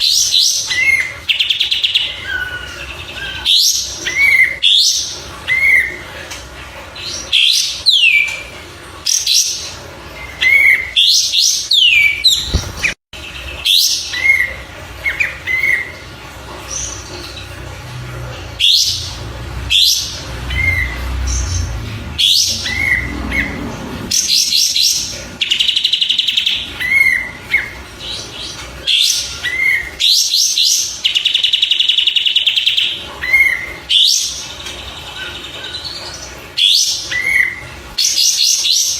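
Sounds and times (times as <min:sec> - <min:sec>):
buzzy bird trills: 0:11.9 - 0:13.0
low rumble: 0:19.0 - 0:24.4.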